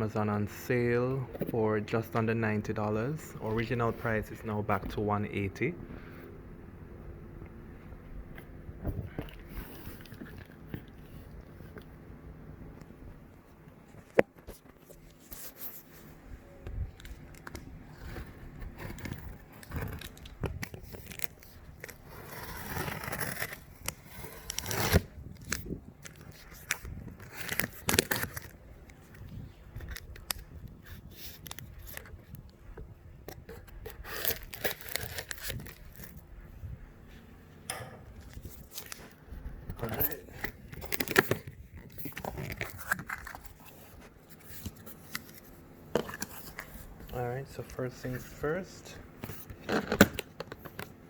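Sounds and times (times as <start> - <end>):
cardboard tearing and scraping: 17.4 - 28.6, 33.6 - 36.2, 39.8 - 45.4.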